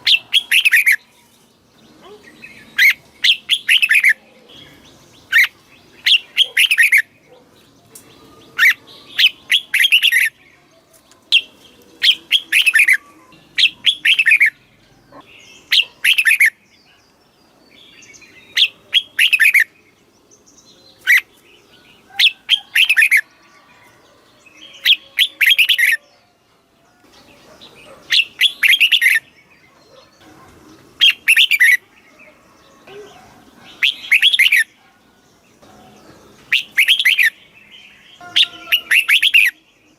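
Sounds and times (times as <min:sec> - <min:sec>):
bird singing whistled phrases: 0:11.4 - 0:14.6, 0:33.8 - 0:34.7, 0:36.5 - 0:37.4, 0:38.2 - 0:39.6.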